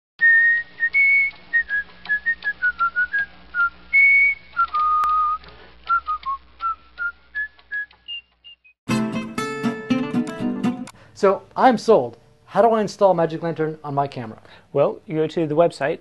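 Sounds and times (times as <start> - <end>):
person whistling a tune: 0.2 - 8.7.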